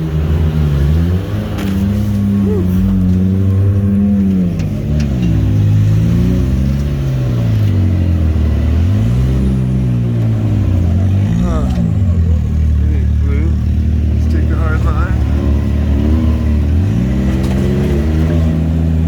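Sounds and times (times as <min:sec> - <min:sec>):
turbo engine revving: 0:00.0 - 0:19.0.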